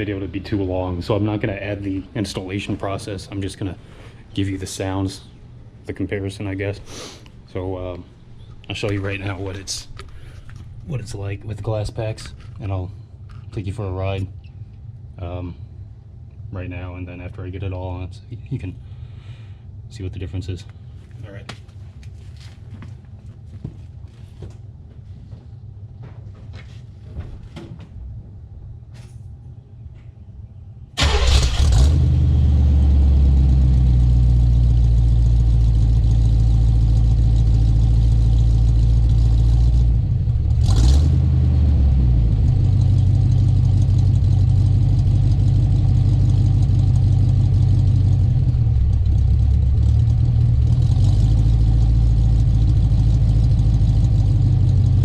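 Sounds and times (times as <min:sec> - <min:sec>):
car engine starting and idling: 0:00.0 - 0:14.0, 0:31.0 - 0:55.0.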